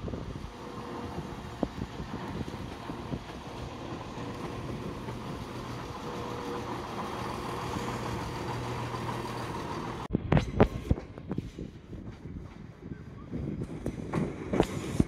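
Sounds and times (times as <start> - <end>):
electric train humming: 0.0 - 10.1.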